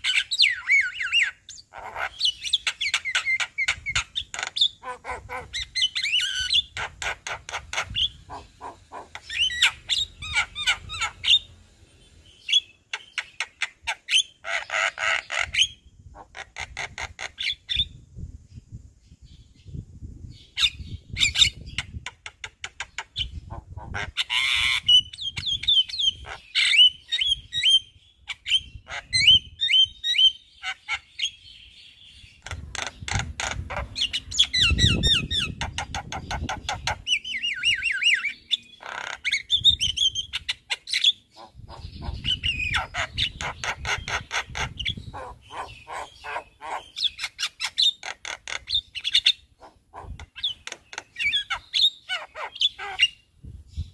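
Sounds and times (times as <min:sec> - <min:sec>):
myna singing and mimicking calls: 0:00.0 - 0:11.5, 0:32.4 - 0:53.2.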